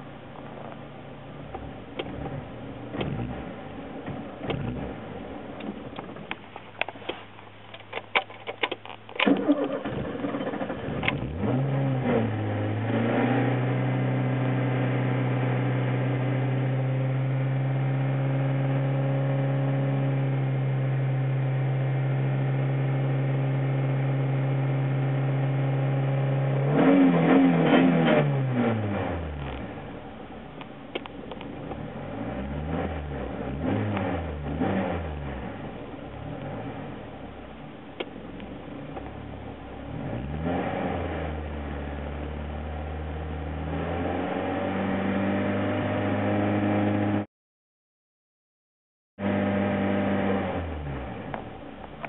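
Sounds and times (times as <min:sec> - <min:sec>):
car engine idling and revving: 0:00.0 - 0:47.3, 0:49.2 - 0:52.0.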